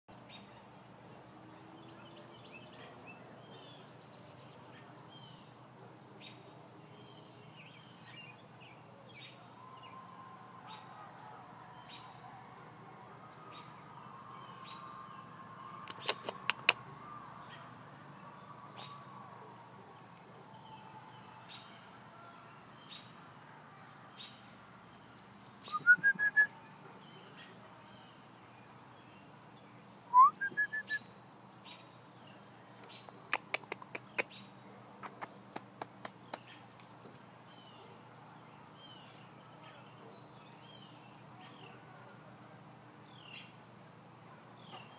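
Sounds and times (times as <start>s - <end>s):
faint songbirds chirping: 0.1s - 44.9s
sharp clicks: 33.1s - 34.3s.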